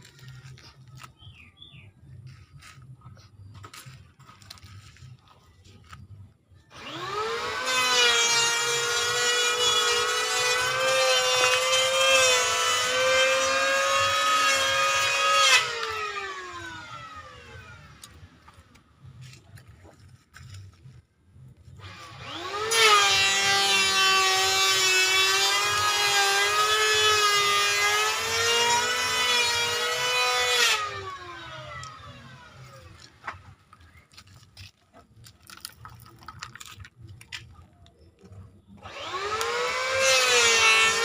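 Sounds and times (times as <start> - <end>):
toy truck electric motor whining: 6.6 - 18.8, 21.7 - 34.8, 38.8 - 41.0.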